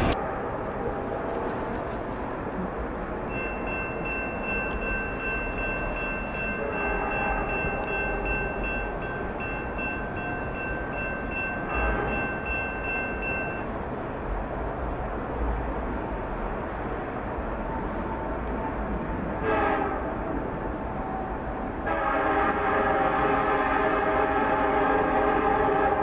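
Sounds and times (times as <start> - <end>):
train rumble: 0.0 - 26.0
high-pitched ringing tone: 3.3 - 13.7.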